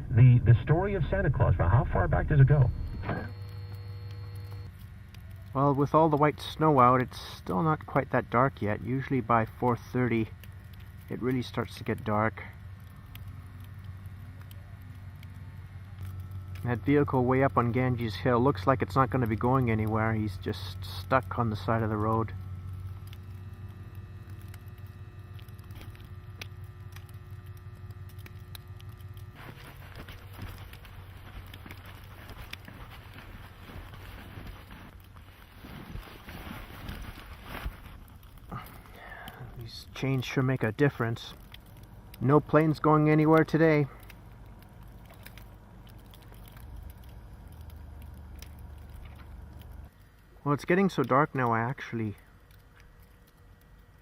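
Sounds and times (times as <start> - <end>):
car cabin drone: 0.0 - 4.6
faint steady whine: 0.0 - 54.0
crunchy tire hiss on snow: 29.3 - 39.6.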